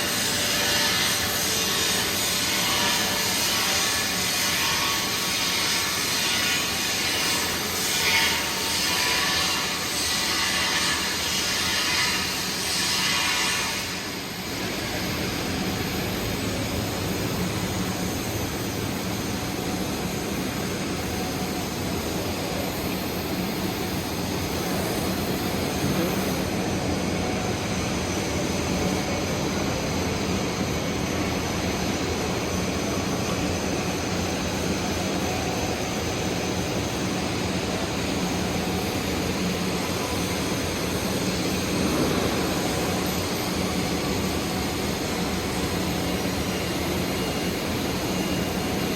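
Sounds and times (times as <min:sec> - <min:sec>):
welding arc crackling hiss: 0:00.0 - 0:17.7.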